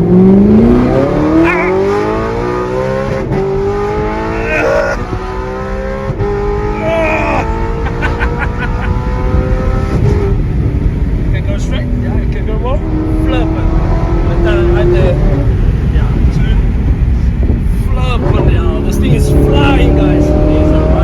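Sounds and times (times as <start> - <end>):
car engine accelerating: 0.0 - 11.6.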